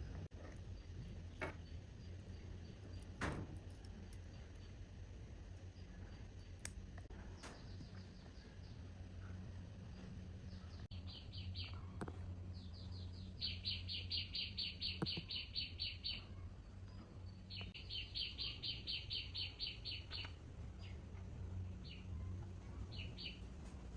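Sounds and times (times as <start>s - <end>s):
low hum: 0.0s - 23.9s
bird chirping: 7.2s - 21.0s, 21.7s - 23.5s.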